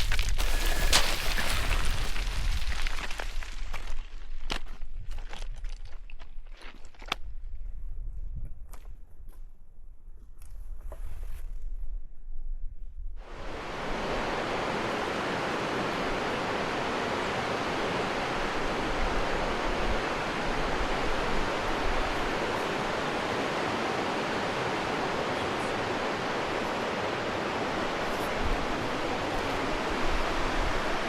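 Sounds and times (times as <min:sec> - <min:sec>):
river rushing: 0:13.2 - 0:31.0.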